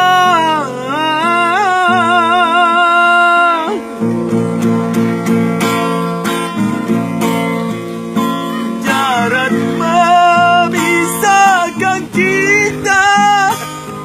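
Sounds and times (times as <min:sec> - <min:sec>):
man singing with vibrato: 0:00.0 - 0:04.9, 0:08.1 - 0:14.0
acoustic guitar strumming: 0:00.0 - 0:14.0.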